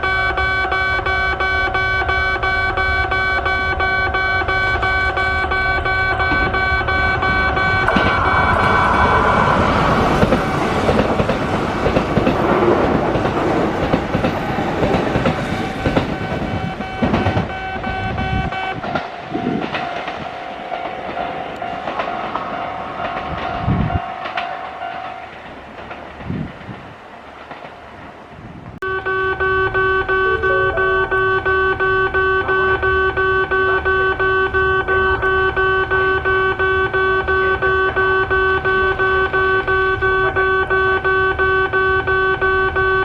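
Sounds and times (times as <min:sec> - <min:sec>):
train whining tones: 0:00.0 - 0:43.0
train wheels clattering over rail joints: 0:07.7 - 0:28.8.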